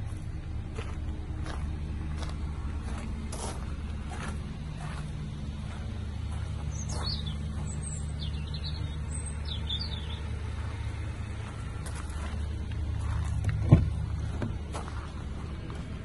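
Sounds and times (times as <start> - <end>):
steady low hum: 0.0 - 16.0
small bird chirping: 6.6 - 10.4.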